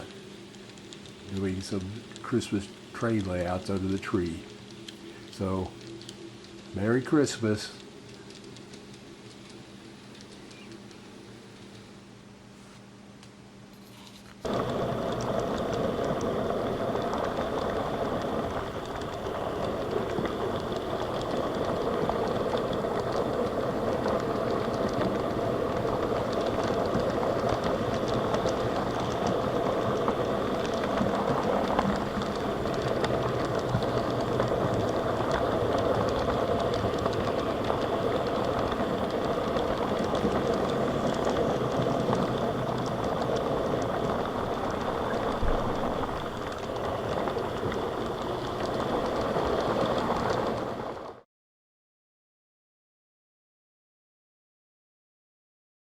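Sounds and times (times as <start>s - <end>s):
model train running on track: 1.0s - 4.5s, 5.3s - 5.8s, 6.7s - 10.5s, 14.4s - 51.0s.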